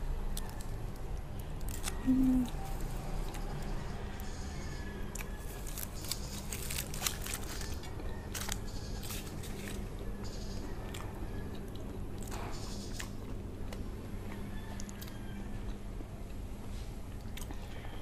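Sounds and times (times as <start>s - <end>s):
person chewing food: 5.1s - 18.0s.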